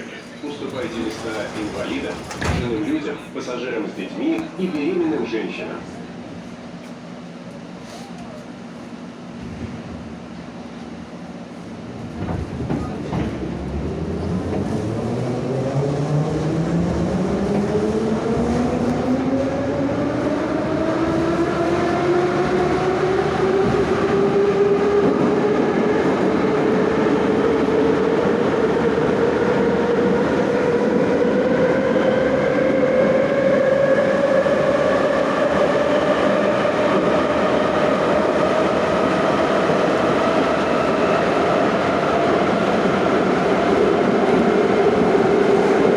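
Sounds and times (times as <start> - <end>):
train wheel rumble: 0.0 - 45.9
rail clatter: 0.5 - 3.2, 11.9 - 15.0.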